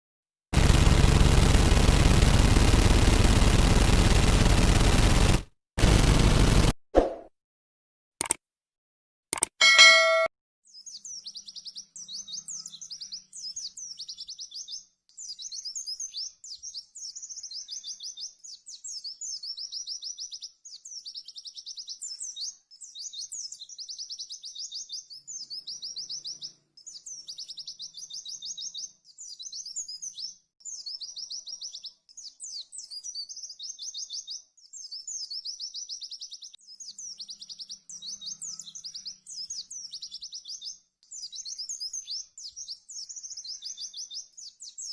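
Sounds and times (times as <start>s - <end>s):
bird singing trilled phrases: 9.6s - 44.9s.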